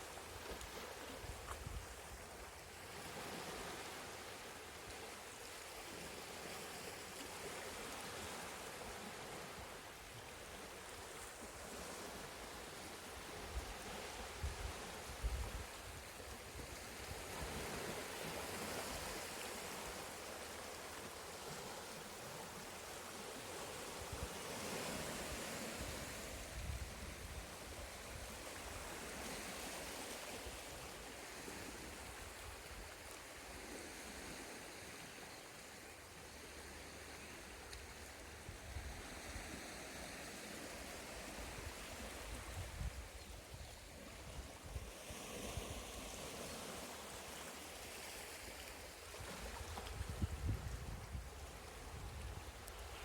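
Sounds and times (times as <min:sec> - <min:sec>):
sea waves washing onto shore: 0:00.0 - 0:35.2
wind rumble on microphone: 0:14.3 - 0:16.0, 0:25.8 - 0:28.8, 0:41.5 - 0:44.9, 0:49.2 - 0:53.0.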